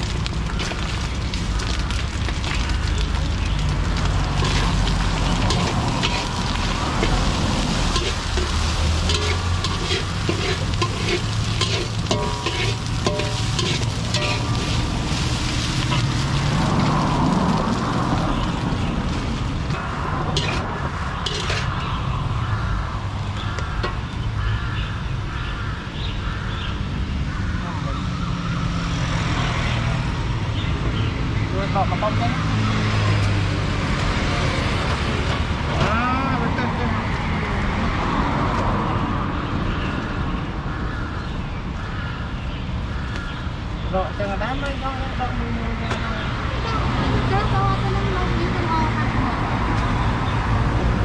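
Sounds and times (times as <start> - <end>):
food sizzling in hot oil: 0.0 - 22.1.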